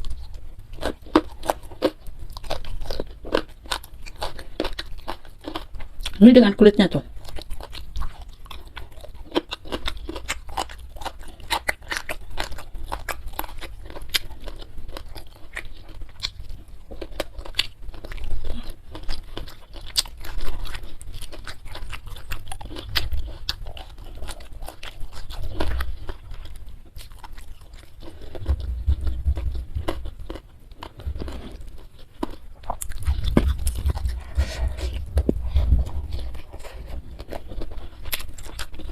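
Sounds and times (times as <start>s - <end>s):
chewing and crunching food: 0.0s - 38.9s
low thuds: 28.4s - 30.3s, 32.9s - 37.4s.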